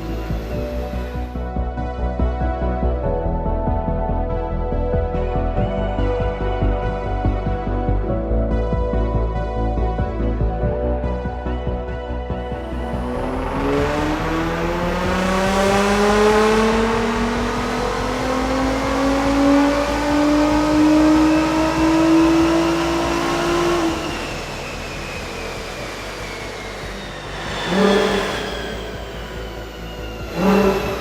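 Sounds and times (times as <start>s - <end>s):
car engine accelerating: 0.0s - 2.8s, 12.3s - 31.0s
car engine rev burst: 12.7s - 31.0s.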